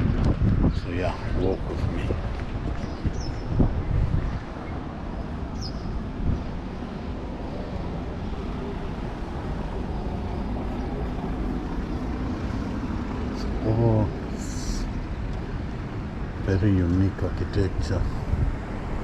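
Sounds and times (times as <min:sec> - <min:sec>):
car engine and tyres on road: 0:00.0 - 0:19.0
street traffic noise: 0:00.0 - 0:19.0.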